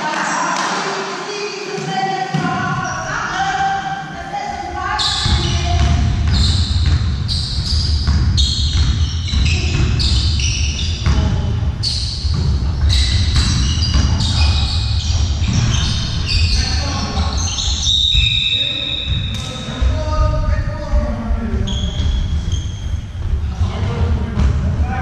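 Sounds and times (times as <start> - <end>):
shoes squeaking on floor: 4.9 - 19.8, 21.6 - 23.6.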